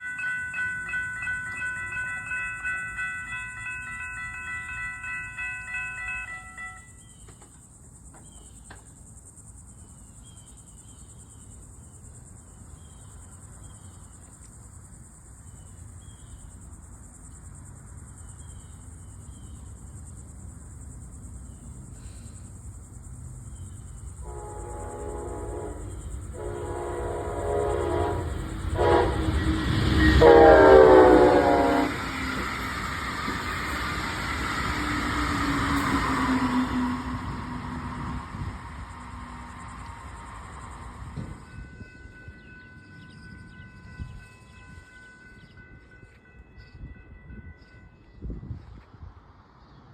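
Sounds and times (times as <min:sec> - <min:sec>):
railroad crossing bell ringing: 0:00.0 - 0:07.3, 0:23.7 - 0:48.9
insects chirping: 0:00.0 - 0:46.8
train horn blasts: 0:24.2 - 0:32.5.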